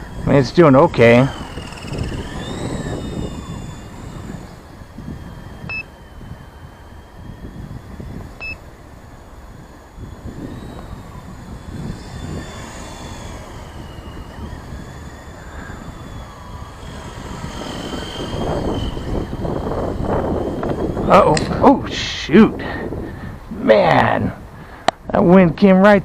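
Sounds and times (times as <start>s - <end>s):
rc helicopter rotor whine: 0.0s - 26.0s
wind rumbling on microphone: 0.0s - 26.0s
short beep: 8.4s - 8.6s.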